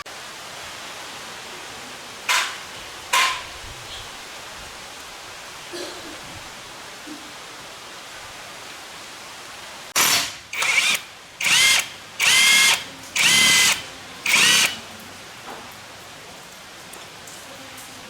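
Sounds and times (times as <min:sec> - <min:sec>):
electric drill whining: 0:10.0 - 0:14.8.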